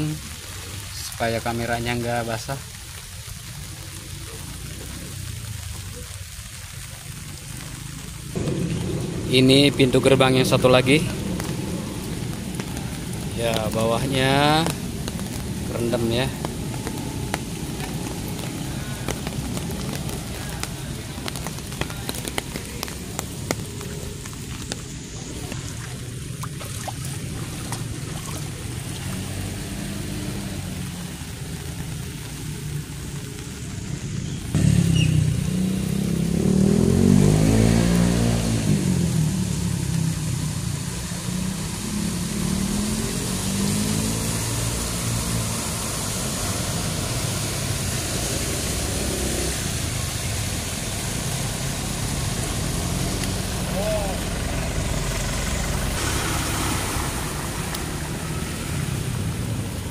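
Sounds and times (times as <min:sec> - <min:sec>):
rain pattering: 0:00.0 - 0:59.9
raindrops ticking on umbrella: 0:00.0 - 0:59.9
vehicle driving past: 0:08.3 - 0:20.7, 0:26.8 - 0:31.1, 0:34.5 - 0:39.8, 0:41.5 - 0:59.9.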